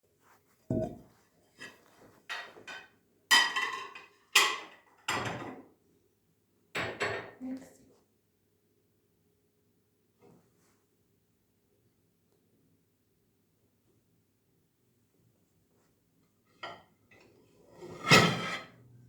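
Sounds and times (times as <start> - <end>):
dishes and cutlery clattering: 1.6 - 5.6.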